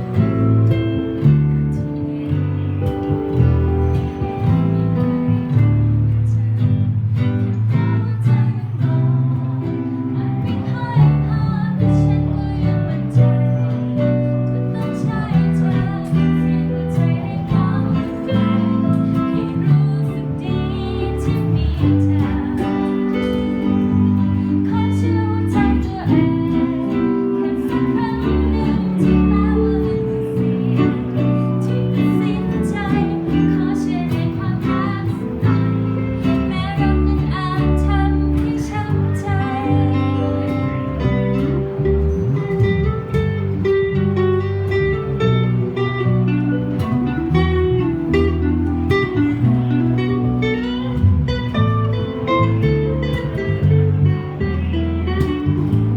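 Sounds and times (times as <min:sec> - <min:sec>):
acoustic guitar strumming: 0:00.0 - 0:55.9
person singing: 0:07.7 - 0:41.8.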